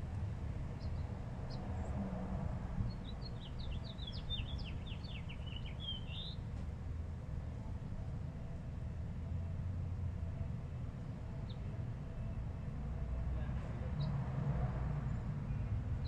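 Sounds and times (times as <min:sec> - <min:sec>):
small bird singing: 0:02.9 - 0:06.4.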